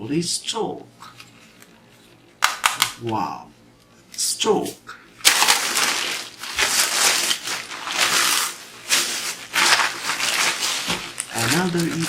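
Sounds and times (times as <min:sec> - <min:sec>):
plastic packaging rustling: 0:05.2 - 0:12.0.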